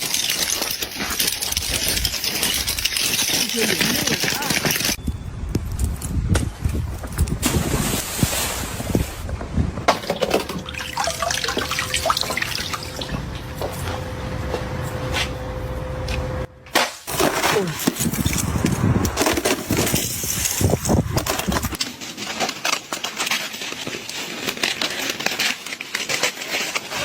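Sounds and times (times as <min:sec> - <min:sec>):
ice cracking and shattering: 0:00.0 - 0:05.0, 0:09.9 - 0:13.2, 0:16.8 - 0:27.0.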